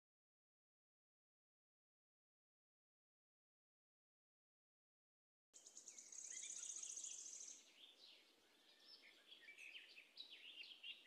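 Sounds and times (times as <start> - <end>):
faint birdsong trills and chirps: 5.6 - 11.0.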